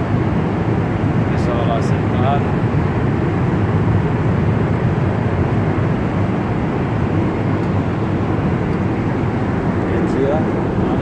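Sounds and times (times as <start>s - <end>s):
airliner cabin noise: 0.0s - 11.0s.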